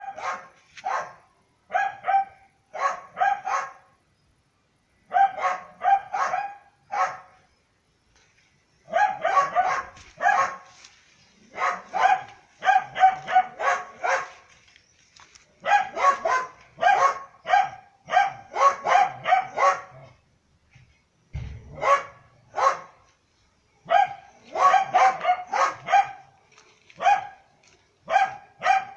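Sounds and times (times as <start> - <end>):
dogs barking: 0.0 - 3.9, 5.1 - 7.4, 8.9 - 10.7, 11.5 - 14.5, 15.6 - 20.2, 21.6 - 23.0, 23.9 - 26.3, 26.9 - 28.9.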